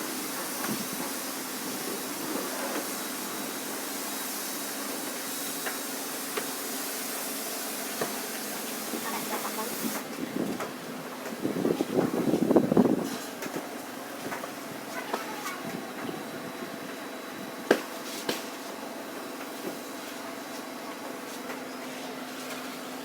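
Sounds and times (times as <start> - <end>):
foam brush spraying hiss: 0.0 - 10.0.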